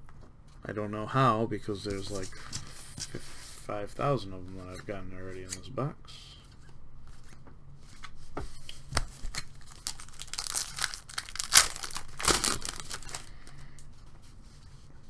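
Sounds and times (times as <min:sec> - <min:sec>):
card wrapper tearing and crinkling: 0:09.0 - 0:13.6.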